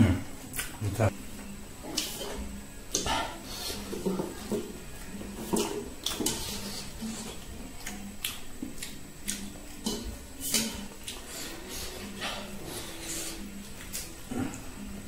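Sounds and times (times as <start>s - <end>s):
wet chewing and lip smacks: 7.8s - 9.9s.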